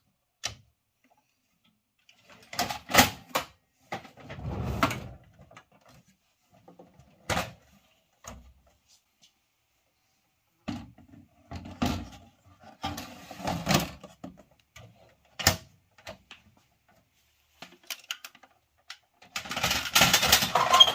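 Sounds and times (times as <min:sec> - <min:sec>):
plastic parts clicking and knocking: 0:10.6 - 0:16.6, 0:17.5 - 0:20.9.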